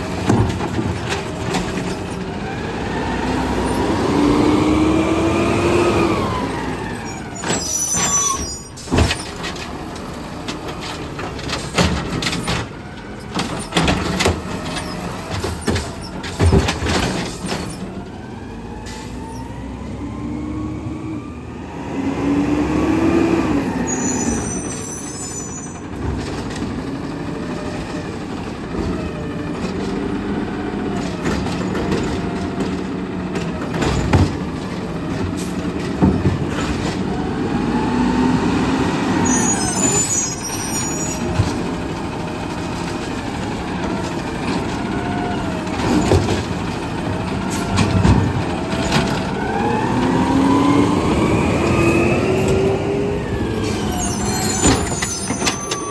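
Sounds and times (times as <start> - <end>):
truck engine revving: 0.0 - 25.0, 26.5 - 55.9
hydraulics running: 22.6 - 55.9.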